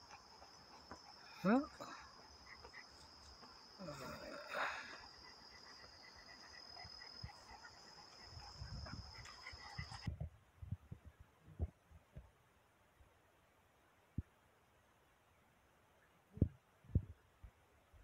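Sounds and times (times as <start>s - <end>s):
insects chirring: 0.0s - 10.1s.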